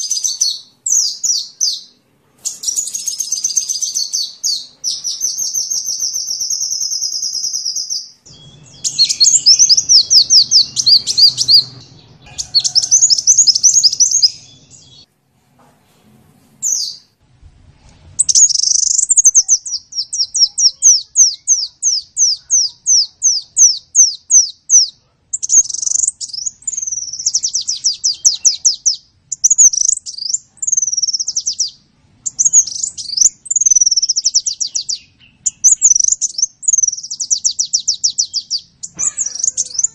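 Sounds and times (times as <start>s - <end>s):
sunbird trills and sweeping notes: 8.3s - 15.0s.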